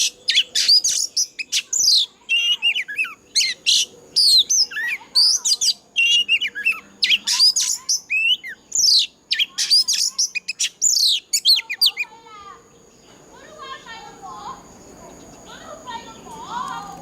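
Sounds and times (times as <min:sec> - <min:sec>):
bird singing whistles and trills: 0:00.0 - 0:12.1
faint low bird chatter: 0:00.0 - 0:17.0.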